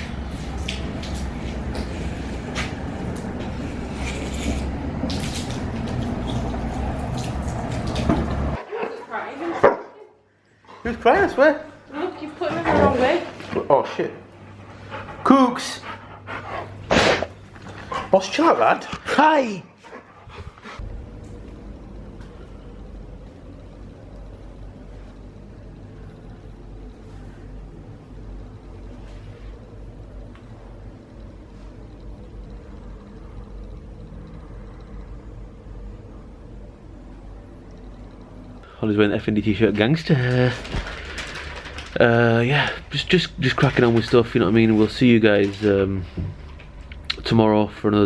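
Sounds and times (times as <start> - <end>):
garden hose water spraying: 0.0 - 8.6
vehicle engine and road noise: 0.0 - 8.6
low hum: 19.8 - 39.8.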